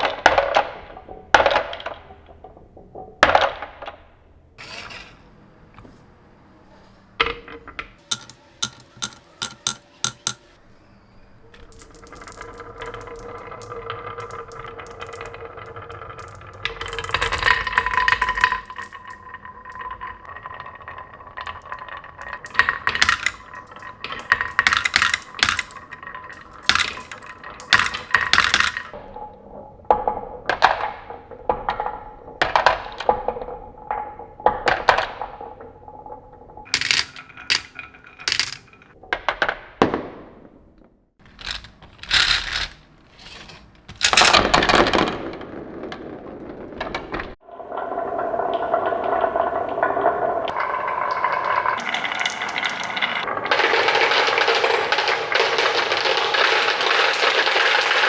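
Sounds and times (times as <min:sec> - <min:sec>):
plastic toys clattering: 0:07.2 - 0:10.4, 0:11.5 - 0:29.0, 0:36.7 - 0:39.0, 0:41.2 - 0:47.4.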